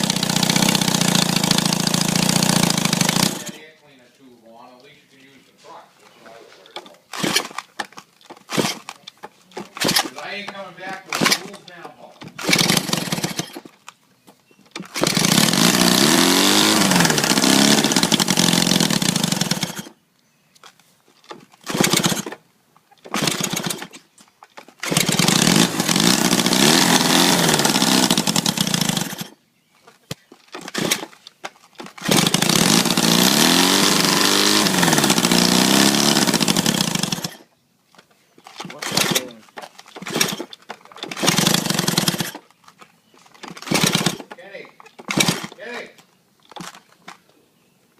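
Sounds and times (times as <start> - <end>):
motorcycle engine revving: 0.0 - 3.7, 6.8 - 8.9, 9.6 - 11.6, 12.2 - 13.7, 14.8 - 20.0, 21.6 - 22.4, 23.1 - 24.0, 24.8 - 29.4, 30.5 - 31.2, 31.8 - 37.5, 38.6 - 42.4, 43.4 - 44.4, 45.0 - 45.6.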